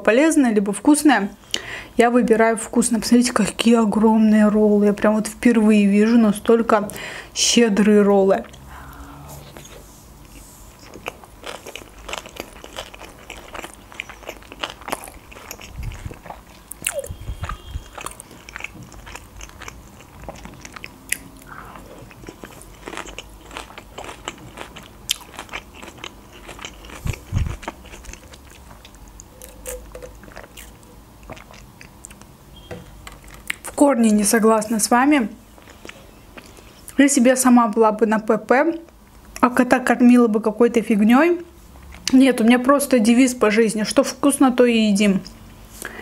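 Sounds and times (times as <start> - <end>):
chewing with wet mouth sounds: 9.5 - 32.3, 35.6 - 37.0.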